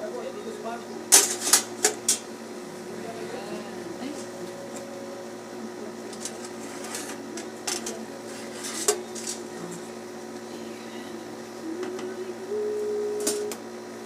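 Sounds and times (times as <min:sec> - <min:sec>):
toaster oven clicks and clatter: 0:01.1 - 0:02.2.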